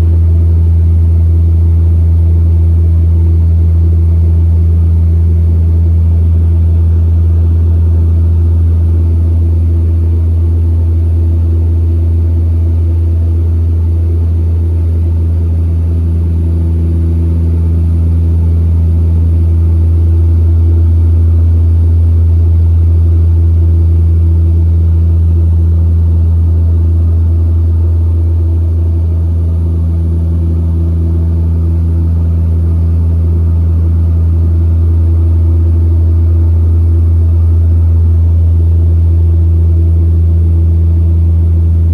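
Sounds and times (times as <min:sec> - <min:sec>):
turboprop engine drone: 0:00.0 - 0:41.9.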